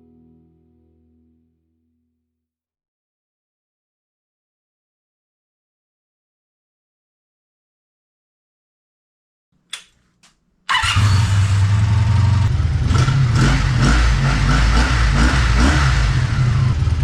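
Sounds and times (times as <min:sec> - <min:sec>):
short clicks: 0:09.6 - 0:11.2
motorcycle engine running loud: 0:10.7 - 0:17.0.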